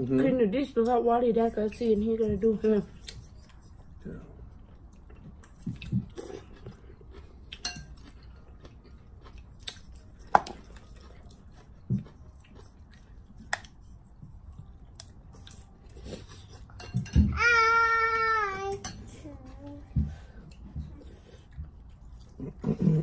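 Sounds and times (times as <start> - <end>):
utensils clinking against dishes: 7.6 - 8.2, 16.3 - 17.4.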